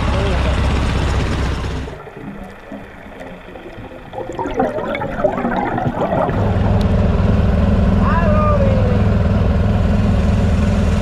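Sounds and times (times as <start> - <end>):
steady engine hum: 0.0 - 11.0
water gurgling and bubbling: 0.8 - 7.8.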